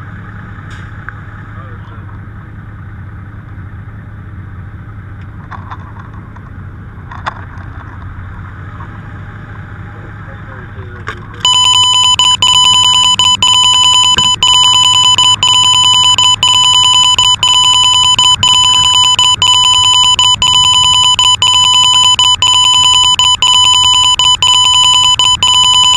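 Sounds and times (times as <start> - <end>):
high-pitched electronic beep tone: 11.4 - 25.9.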